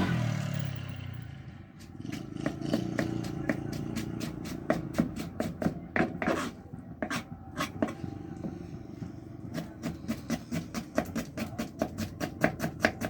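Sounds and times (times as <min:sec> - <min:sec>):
knife chopping on cutting board: 0:02.2 - 0:08.6, 0:09.5 - 0:13.0.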